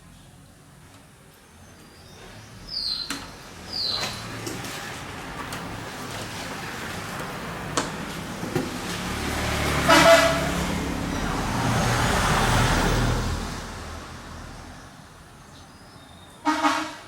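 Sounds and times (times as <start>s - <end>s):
vehicle passing: 3.9s - 15.5s
vehicle horn toot: 9.8s - 10.8s, 16.4s - 17.0s.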